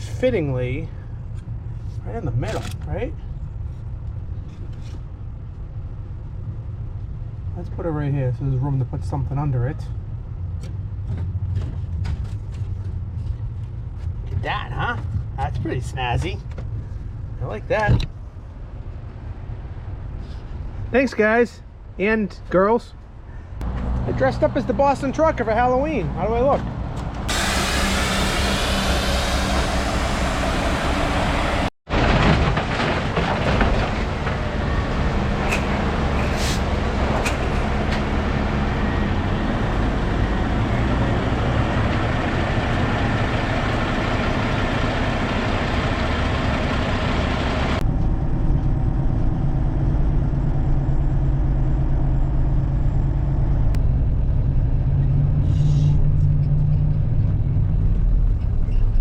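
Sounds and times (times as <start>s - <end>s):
truck diesel engine running: 27.1s - 32.3s, 32.9s - 58.5s.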